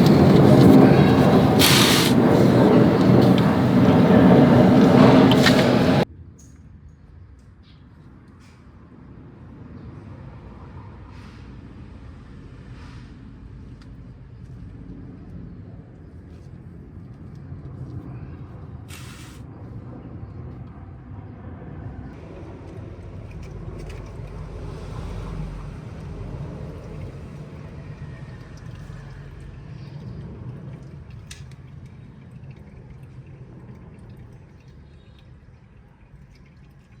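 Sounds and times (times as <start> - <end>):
motor humming: 0.0 - 6.0
burst of hissing: 1.2 - 2.6, 18.9 - 19.4.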